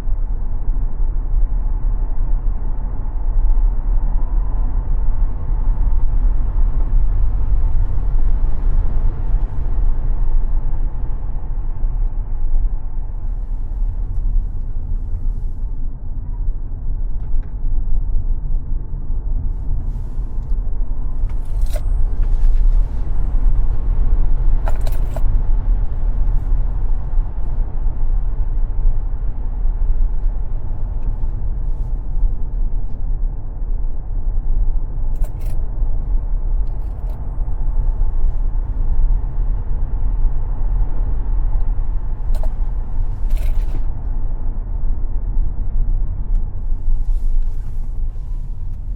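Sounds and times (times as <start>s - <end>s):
tyre and road rumble: 19.3s - 33.9s, 34.8s - 48.9s.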